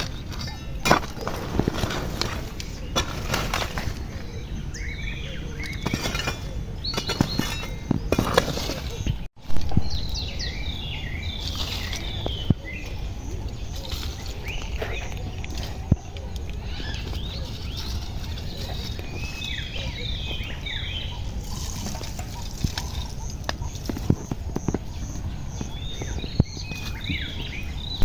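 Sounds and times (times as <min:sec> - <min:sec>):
tool digging through soil: 0:00.0 - 0:04.4, 0:05.6 - 0:09.8, 0:11.2 - 0:13.0, 0:13.6 - 0:24.9
birds chirping: 0:00.0 - 0:28.0.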